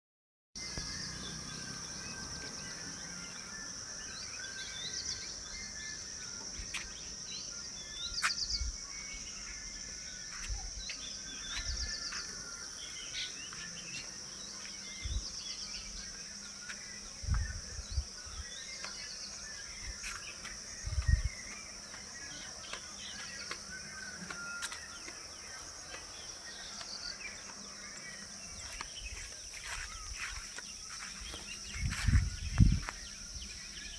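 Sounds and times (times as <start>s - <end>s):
birds chirping: 0.6s - 33.9s
high insect drone: 0.6s - 33.9s.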